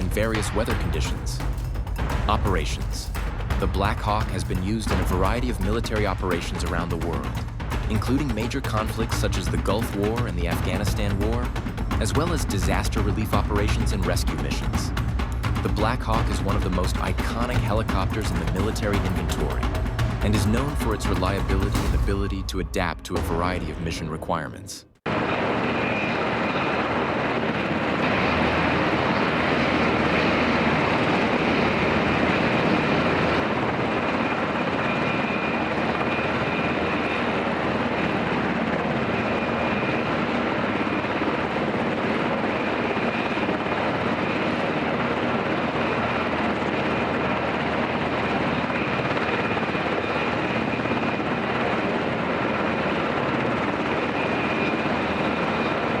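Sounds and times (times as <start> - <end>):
helicopter rotor and engine noise: 0.0 - 56.0
faint high whine: 25.1 - 56.0.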